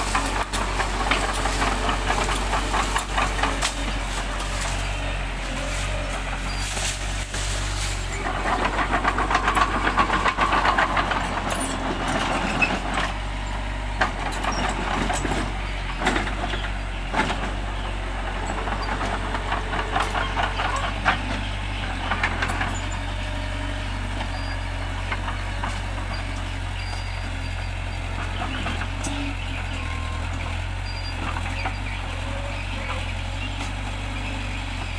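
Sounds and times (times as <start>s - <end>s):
metallic rattle: 0.0s - 13.2s
bulldozer diesel engine running: 0.0s - 34.9s.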